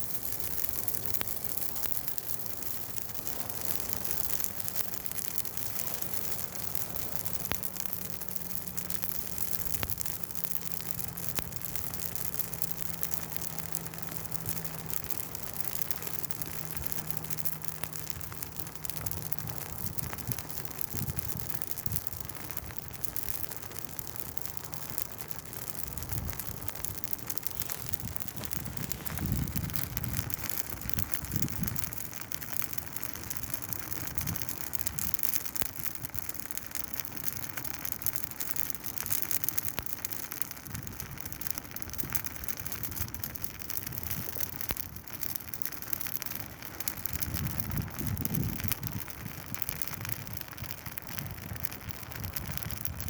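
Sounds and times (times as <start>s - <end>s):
fire crackling and popping: 0.0s - 53.0s
low rumbles: 24.8s - 32.1s.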